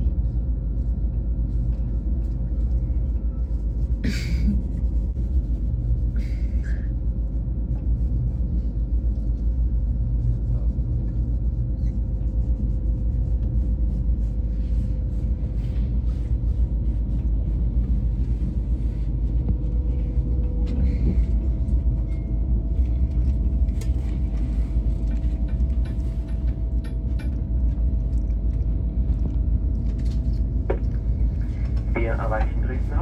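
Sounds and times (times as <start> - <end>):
faint whine: 0.0 - 33.0
train rumbling: 0.0 - 33.0.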